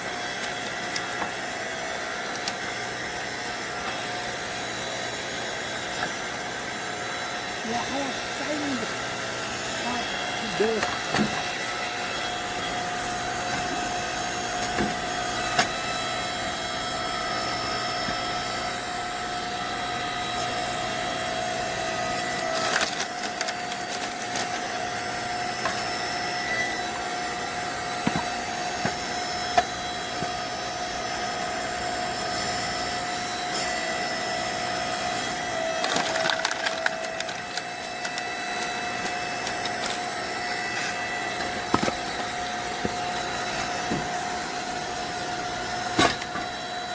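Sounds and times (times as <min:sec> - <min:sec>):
log splitter motor humming: 0:00.0 - 0:46.9
log cracking and splintering: 0:00.4 - 0:01.4, 0:22.4 - 0:24.7, 0:35.8 - 0:40.1.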